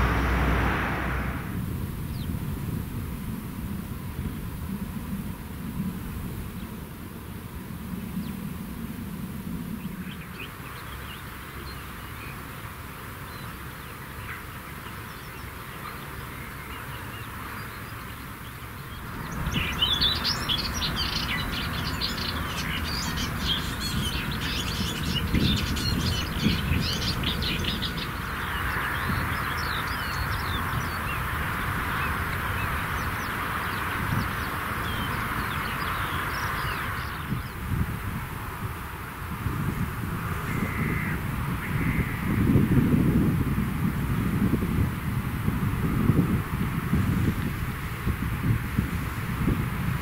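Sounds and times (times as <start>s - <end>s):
songbirds chirping and trilling: 9.7s - 43.0s.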